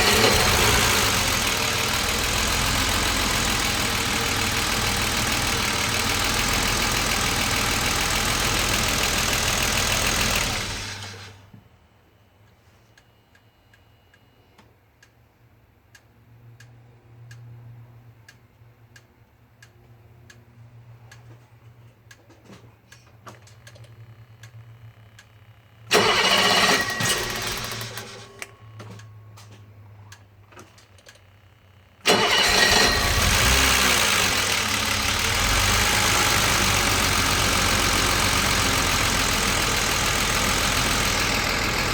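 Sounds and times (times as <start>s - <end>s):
car engine starting: 0.0s - 11.5s, 25.9s - 29.6s, 32.0s - 41.9s.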